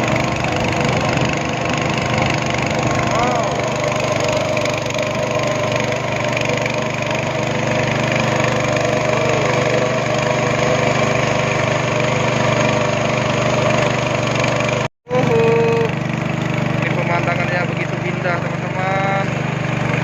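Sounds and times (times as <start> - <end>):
speedboat engine droning: 0.0 - 20.0.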